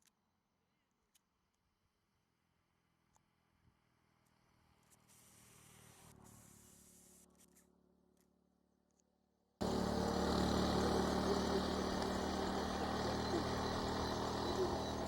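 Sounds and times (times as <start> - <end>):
outdoor background noise: 9.6 - 15.0
vehicle engine idling: 9.6 - 15.0.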